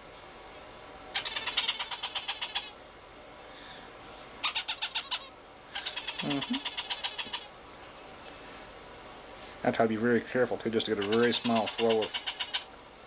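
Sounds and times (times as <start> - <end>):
parrot chick begging call: 1.2 - 2.7, 4.4 - 7.5, 11.0 - 12.7.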